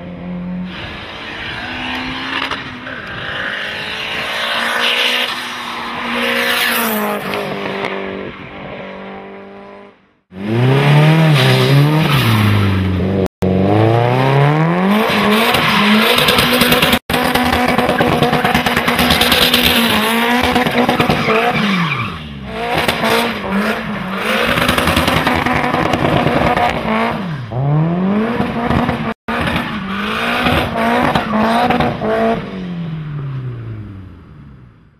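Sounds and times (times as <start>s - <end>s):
car engine revving hard: 10.3s - 32.7s.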